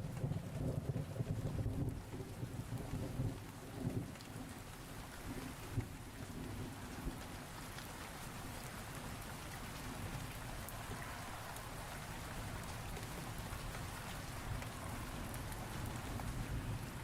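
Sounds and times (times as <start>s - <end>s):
rain falling: 0.0s - 17.0s
raindrop ticks: 0.0s - 17.0s.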